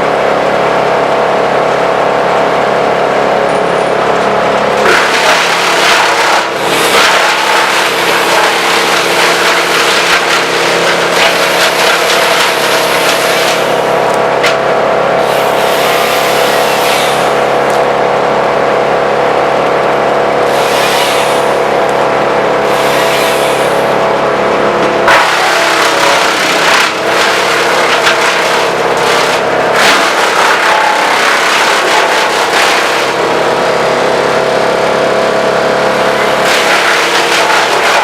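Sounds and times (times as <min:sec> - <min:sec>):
wood chipper engine running: 0:00.0 - 0:38.0
branches being chipped: 0:04.8 - 0:13.7, 0:25.1 - 0:33.5, 0:36.4 - 0:38.0.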